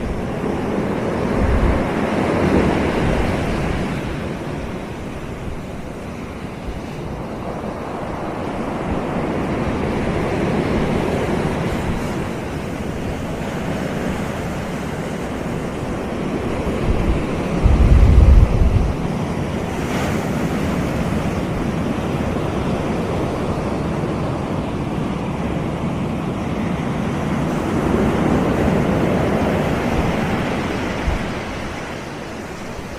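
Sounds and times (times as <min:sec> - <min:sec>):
surf washing onto beach: 0:00.0 - 0:32.9
wind buffeting microphone: 0:00.0 - 0:32.9.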